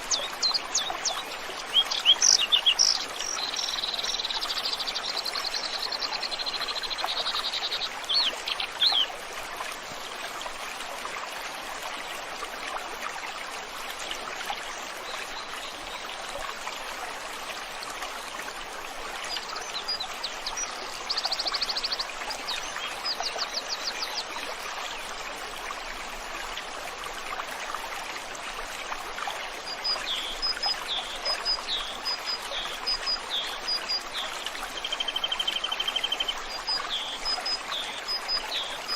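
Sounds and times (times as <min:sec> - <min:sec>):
small birds singing: 0:00.0 - 0:09.2, 0:29.7 - 0:38.9
stream water rushing: 0:00.0 - 0:38.9.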